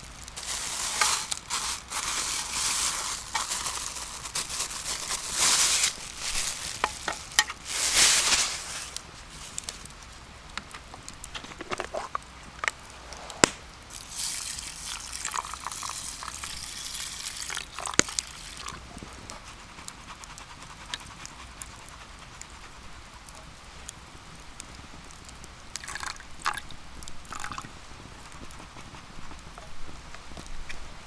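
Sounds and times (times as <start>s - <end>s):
hissing liquid in hot pan: 0.0s - 10.0s, 12.6s - 23.1s.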